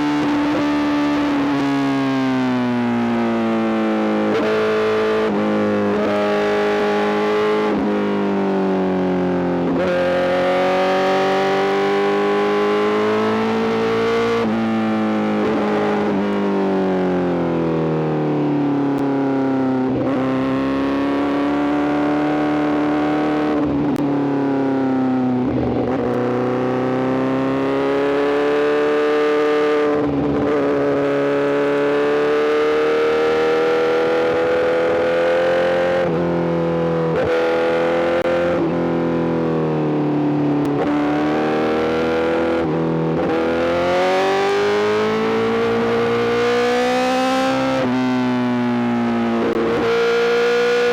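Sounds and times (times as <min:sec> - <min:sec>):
motorcycle engine revving: 0:02.9 - 0:17.6, 0:25.3 - 0:39.3, 0:40.6 - 0:50.9.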